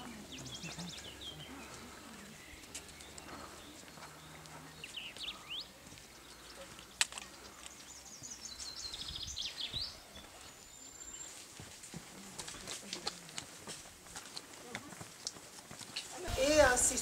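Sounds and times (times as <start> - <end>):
small birds singing: 0.0 - 11.6.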